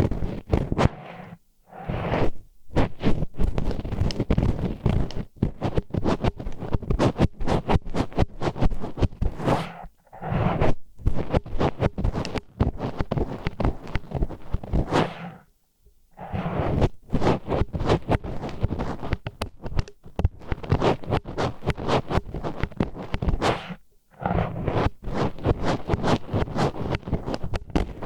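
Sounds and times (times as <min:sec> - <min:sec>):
wooden chopsticks scraping in ear: 0:08.2 - 0:15.4, 0:16.2 - 0:20.0, 0:20.6 - 0:27.6.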